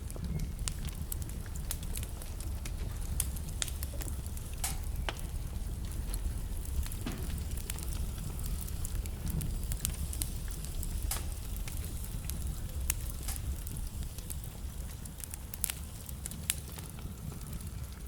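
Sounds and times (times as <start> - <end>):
burning logs crackling and popping: 0.0 - 18.0
fire flames rumbling: 0.0 - 18.0.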